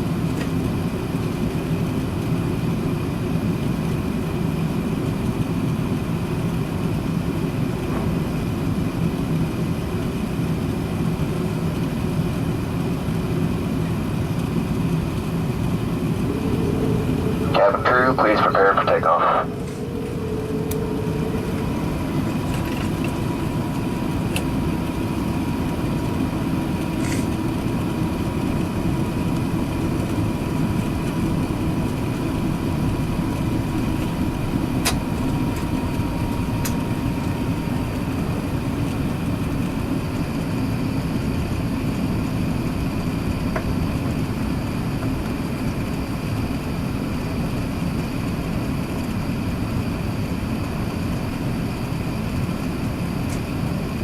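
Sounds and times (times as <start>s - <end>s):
airplane cabin rumble: 5.0s - 41.3s.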